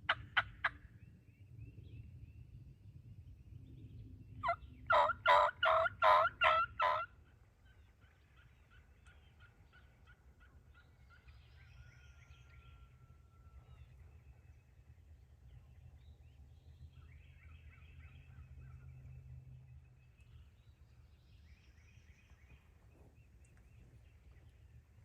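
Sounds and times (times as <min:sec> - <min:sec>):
wild turkey yelping: 0:00.1 - 0:00.8, 0:04.4 - 0:11.4.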